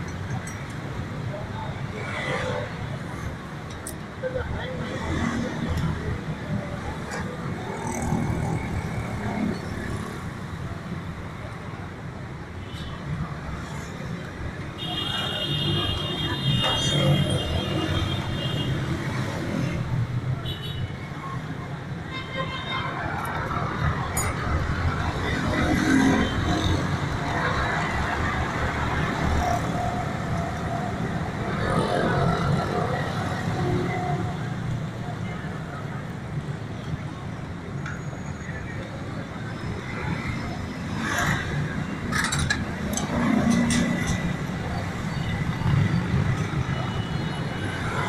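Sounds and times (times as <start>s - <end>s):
traffic rumble: 22.8s - 48.0s.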